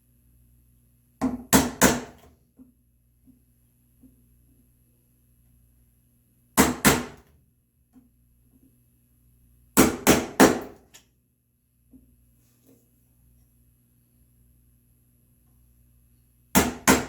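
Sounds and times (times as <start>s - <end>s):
mallet striking chisel: 16.6s - 17.0s.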